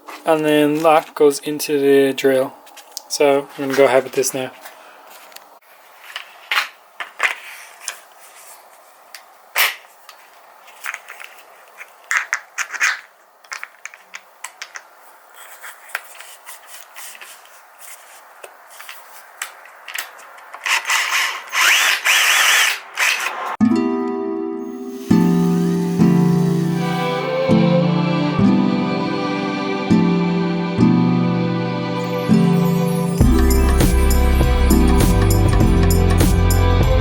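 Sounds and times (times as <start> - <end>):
handling clicks and rubbing: 9.2 - 23.4
drill sanding plastic whirr: 20.6 - 23.4.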